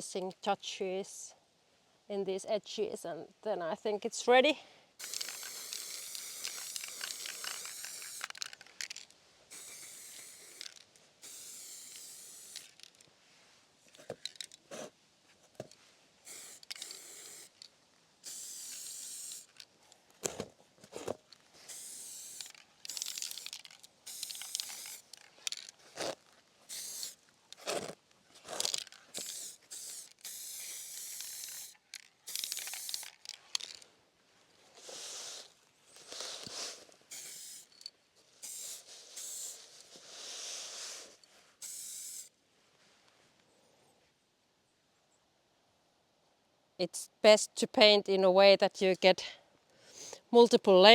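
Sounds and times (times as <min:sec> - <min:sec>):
aerosol spray can hissing: 0:05.0 - 0:08.5, 0:09.5 - 0:12.8, 0:16.2 - 0:17.6, 0:18.2 - 0:19.6, 0:21.7 - 0:25.2, 0:26.7 - 0:27.2, 0:29.1 - 0:33.1, 0:36.4 - 0:37.8, 0:38.4 - 0:42.3.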